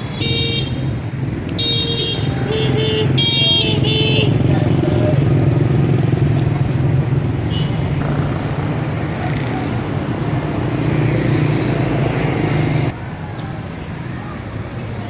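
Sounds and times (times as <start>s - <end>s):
road noise: 0.0s - 15.0s
traffic engine drone: 0.0s - 15.0s.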